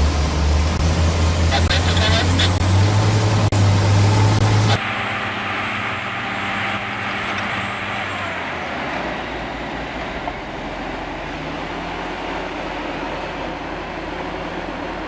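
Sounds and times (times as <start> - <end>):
heavy machinery engines running: 0.0 - 15.0.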